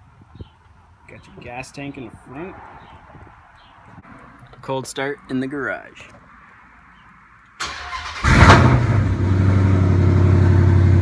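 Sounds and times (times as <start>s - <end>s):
car engine revving and idling: 8.0s - 11.0s.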